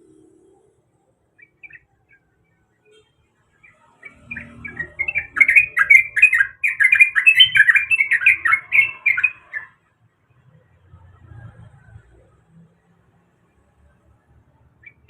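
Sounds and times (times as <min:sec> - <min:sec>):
bird chattering song: 0:01.4 - 0:02.6, 0:03.6 - 0:09.8, 0:14.8 - 0:15.0.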